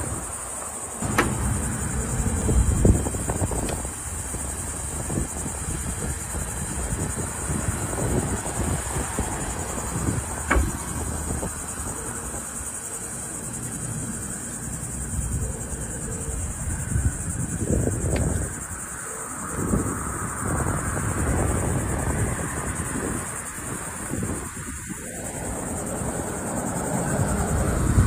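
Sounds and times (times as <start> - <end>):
insects chirping: 0.0 - 28.0
sharp click: 10.4 - 11.0.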